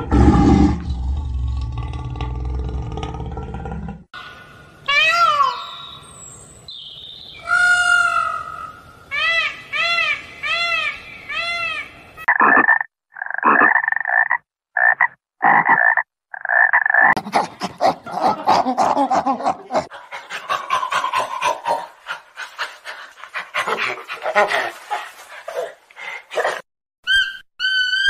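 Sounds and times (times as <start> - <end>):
peacock calling: 6.8 - 12.7
frog croaking: 12.2 - 17.2.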